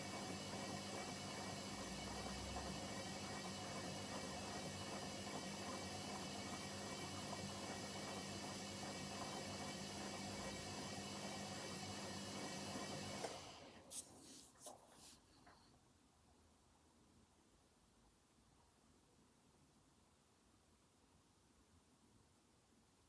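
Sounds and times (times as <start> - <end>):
washing machine humming: 0.0 - 15.1.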